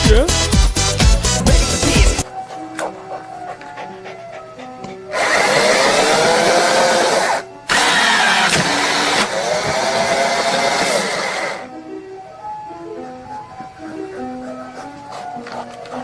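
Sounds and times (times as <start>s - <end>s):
soft music: 0.0s - 16.0s
small motor whirring: 5.2s - 11.6s.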